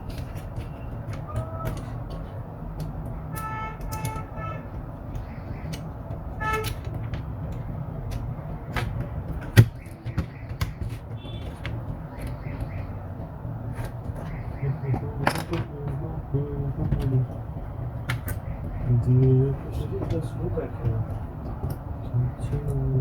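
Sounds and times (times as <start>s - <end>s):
low rumble of traffic: 0.0s - 23.0s
vehicle horn toots: 3.3s - 4.7s, 6.4s - 6.8s, 11.2s - 11.6s.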